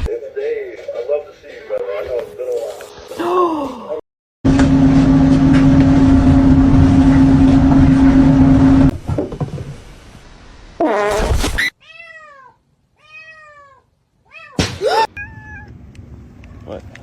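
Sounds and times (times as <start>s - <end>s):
cat meowing: 11.8s - 14.6s, 15.2s - 15.7s.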